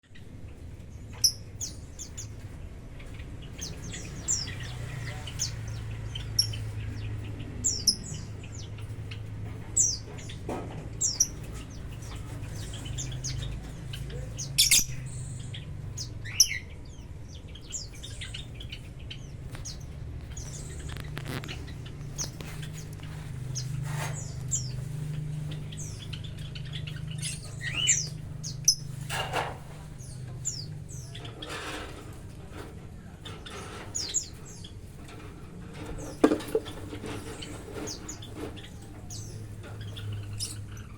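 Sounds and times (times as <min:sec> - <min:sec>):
lovebirds chirping and squawking: 0:00.0 - 0:40.9.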